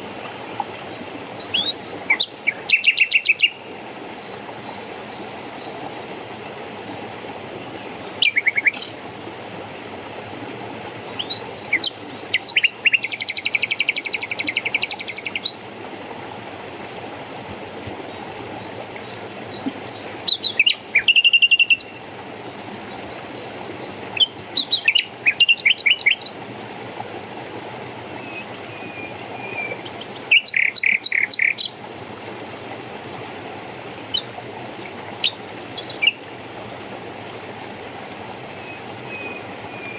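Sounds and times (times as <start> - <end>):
running water rushing: 0.0 - 39.9
songbirds singing: 0.9 - 3.8, 6.7 - 9.1, 11.1 - 15.6, 18.0 - 22.0, 22.8 - 26.4, 28.0 - 31.8, 35.0 - 36.3, 38.5 - 39.9.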